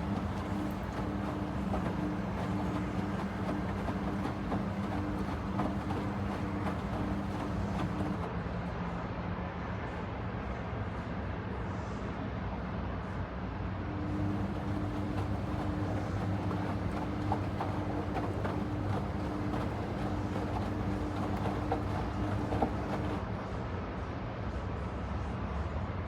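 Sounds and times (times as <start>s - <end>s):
washing machine motor hum: 0.0s - 8.3s, 13.9s - 23.2s.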